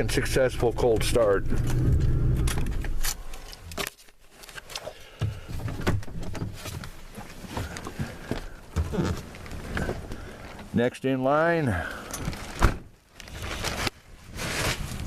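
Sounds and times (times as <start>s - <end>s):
truck engine rumbling: 0.0s - 3.8s.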